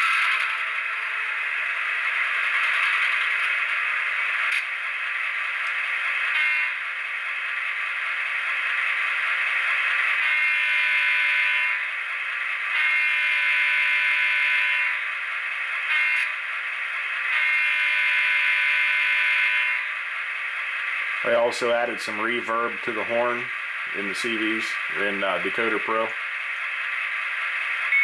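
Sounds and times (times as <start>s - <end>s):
model train air horn: 6.4s - 6.8s, 10.2s - 11.9s, 12.8s - 15.0s, 15.9s - 16.4s, 17.3s - 19.9s
locomotive engine sound: 19.8s - 28.0s.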